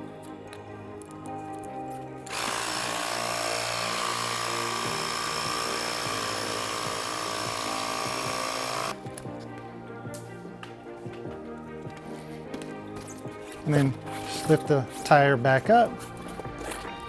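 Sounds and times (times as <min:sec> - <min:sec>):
background music: 0:00.0 - 0:17.0
electric tire pump running: 0:02.3 - 0:09.2.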